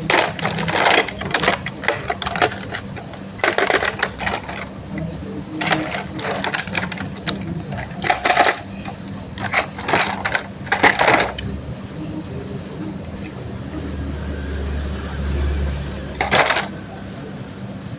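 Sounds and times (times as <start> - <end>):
plastic toys clattering: 0.0 - 11.5, 16.2 - 16.8.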